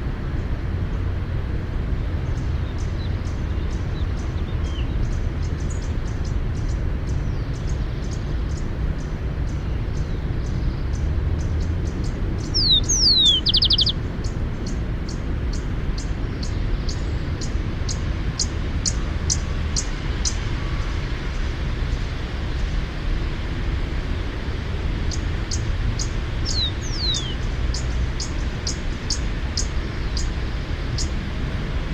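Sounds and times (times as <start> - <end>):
steady low rumble: 0.0 - 31.9
sparrow singing: 2.3 - 20.9, 25.0 - 31.2.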